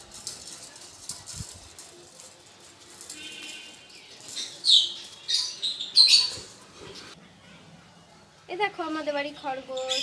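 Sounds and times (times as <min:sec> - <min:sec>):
birds chirping: 0:03.0 - 0:07.2.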